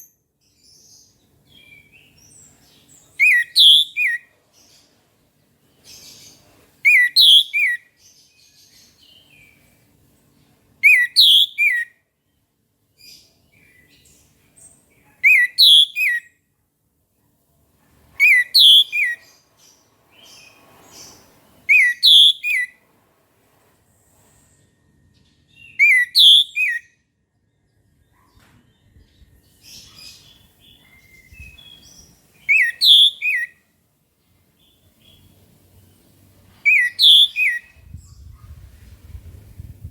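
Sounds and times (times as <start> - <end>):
bird twittering: 1.6 - 4.2, 5.9 - 7.9, 10.8 - 11.9, 15.2 - 16.3, 18.2 - 19.4, 20.2 - 22.7, 25.6 - 26.9, 29.7 - 33.6, 36.6 - 38.3
thrush whistled song: 3.2 - 4.3, 6.8 - 7.9, 10.8 - 11.9, 15.2 - 16.3, 18.2 - 19.2, 21.7 - 22.8, 25.5 - 27.0, 30.8 - 33.6, 36.6 - 38.2.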